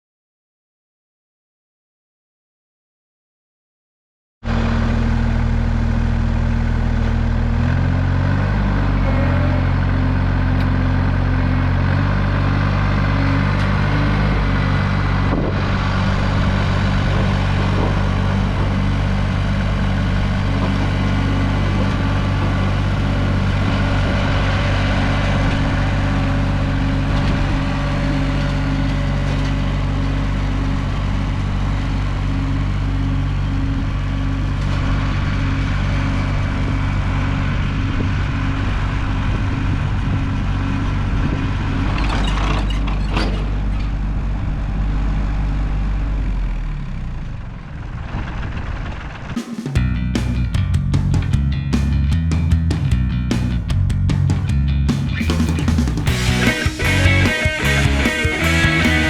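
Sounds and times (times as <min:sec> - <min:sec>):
vehicle engine running: 0:04.4 - 0:42.1, 0:43.5 - 0:59.0.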